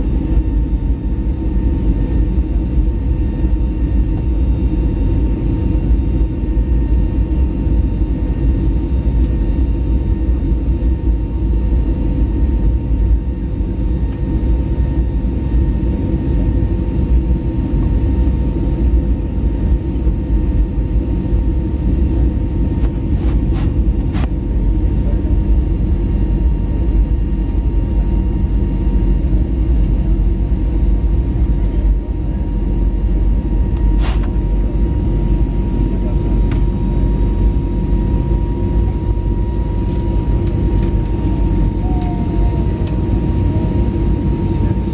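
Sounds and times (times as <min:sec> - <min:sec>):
jet airliner rumble: 0:00.0 - 0:44.9
faint whine: 0:21.4 - 0:44.9.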